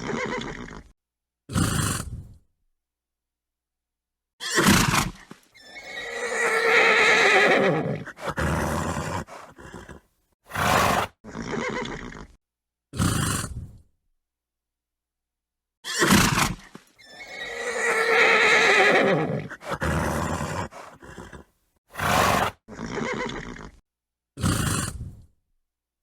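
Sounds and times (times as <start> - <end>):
horse whinnying: 0.0 - 0.9, 4.4 - 12.4, 15.8 - 23.8
horse snorting and breathing: 1.5 - 2.4, 4.6 - 13.9, 16.0 - 23.8, 24.4 - 25.3.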